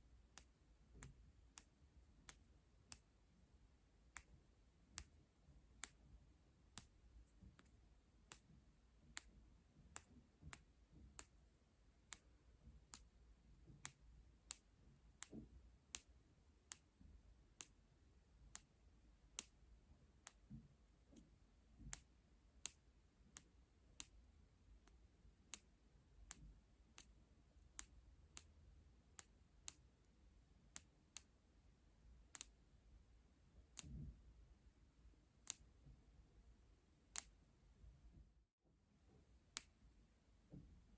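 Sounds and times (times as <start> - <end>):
small sharp clicks: 0.3 - 3.2, 5.8 - 6.1, 6.7 - 17.8, 18.4 - 19.6, 20.2 - 24.2, 24.8 - 31.4, 32.2 - 32.6, 33.7 - 34.1, 35.4 - 35.9, 37.1 - 37.4, 39.5 - 39.8.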